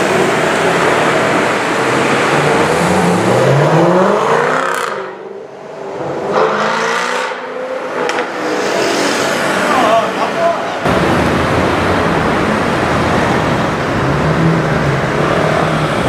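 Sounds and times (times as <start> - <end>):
car engine accelerating hard: 0.0 - 5.2, 10.9 - 16.0.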